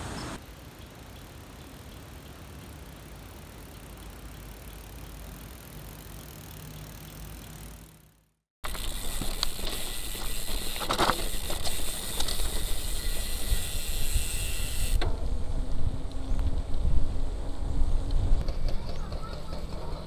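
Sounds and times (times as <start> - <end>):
road noise: 0.0 - 20.0
rattles and clicks: 8.6 - 13.5
wind rumbling on microphone: 15.0 - 19.0.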